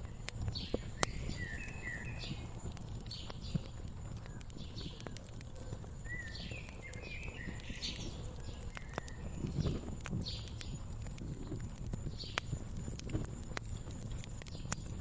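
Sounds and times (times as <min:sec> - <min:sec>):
small birds chirping: 0:00.0 - 0:15.0
wood fire crackling and popping: 0:00.0 - 0:15.0.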